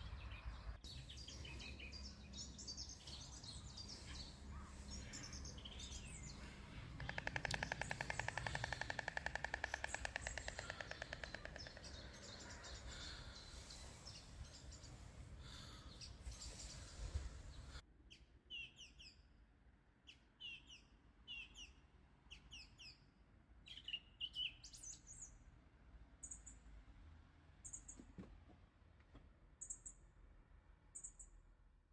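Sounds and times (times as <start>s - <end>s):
small bird chirping: 0.0s - 19.2s
stork bill-clattering: 7.0s - 12.2s.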